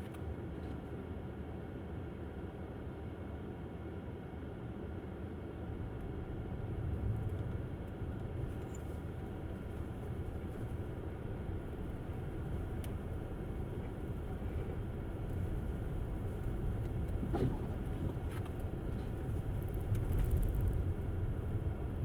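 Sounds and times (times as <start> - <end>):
tyre and road noise: 6.6 - 22.0.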